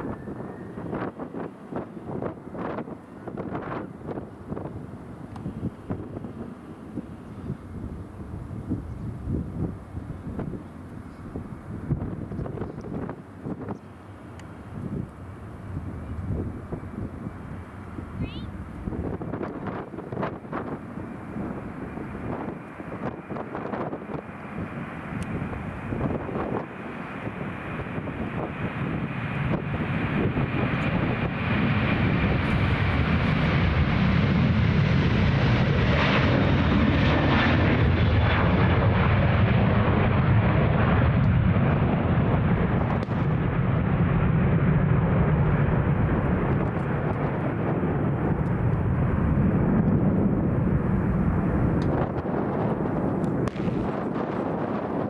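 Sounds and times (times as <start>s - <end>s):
jet engines deep rumble: 0.0s - 55.0s.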